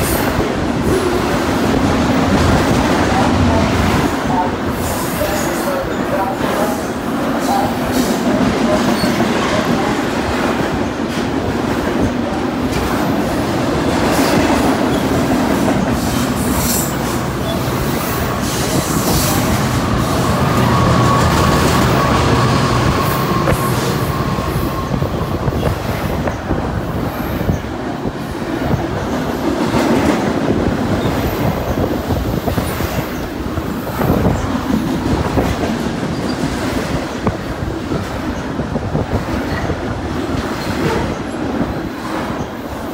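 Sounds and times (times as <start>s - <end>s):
train wheels rumbling over rail joints: 0.0s - 42.9s.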